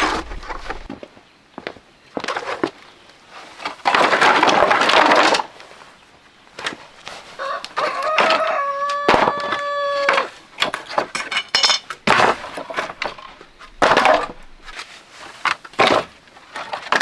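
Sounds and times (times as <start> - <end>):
rooster crowing: 7.4 - 10.4.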